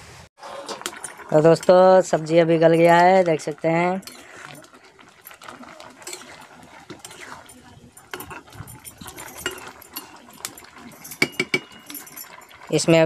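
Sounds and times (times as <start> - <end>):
metal ladle scraping a pot: 0.4 - 13.0.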